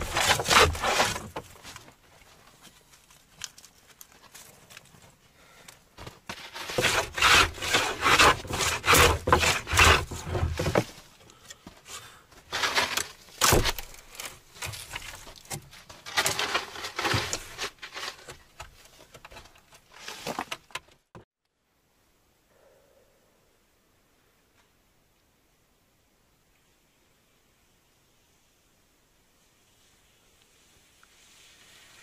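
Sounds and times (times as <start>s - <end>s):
hand plane shaving wood: 0.0s - 1.4s, 6.3s - 10.9s, 12.5s - 13.7s, 16.1s - 18.4s.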